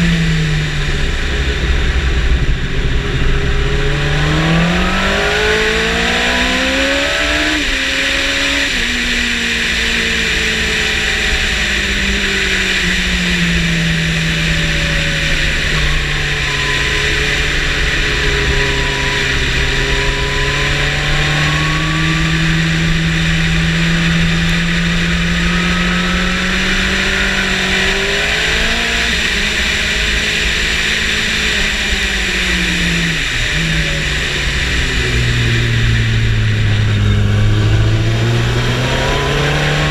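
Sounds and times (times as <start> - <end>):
motorcycle engine at speed: 0.0 - 39.9.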